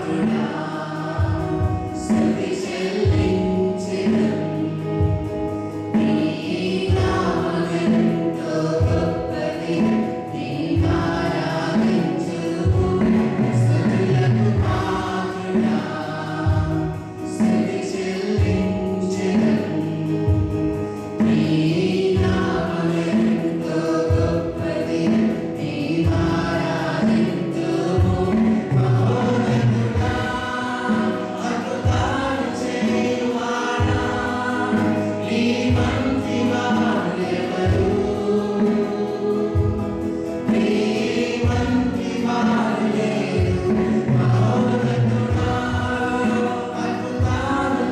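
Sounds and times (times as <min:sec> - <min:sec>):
group singing worship song: 0:00.0 - 0:47.9
instrumental accompaniment: 0:00.0 - 0:47.9.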